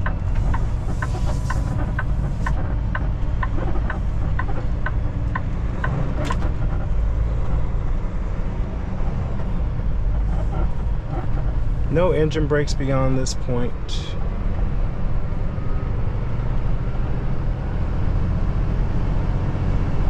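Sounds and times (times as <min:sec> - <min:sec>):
turn signal ticking: 0:00.0 - 0:07.6
diesel engine drone: 0:00.0 - 0:20.0
road noise: 0:00.0 - 0:20.0.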